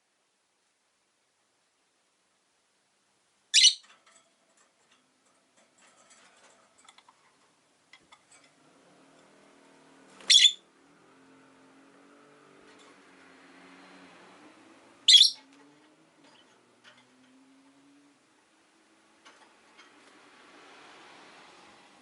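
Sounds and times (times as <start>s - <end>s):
lovebird loud high calls: 3.5s - 3.8s, 10.2s - 10.6s, 15.1s - 15.4s.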